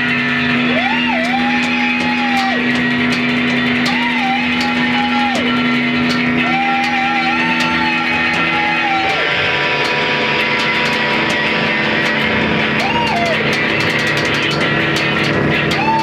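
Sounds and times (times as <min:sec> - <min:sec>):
droning wall of noise: 0:00.0 - 0:16.0
crackling clicks: 0:00.1 - 0:16.0.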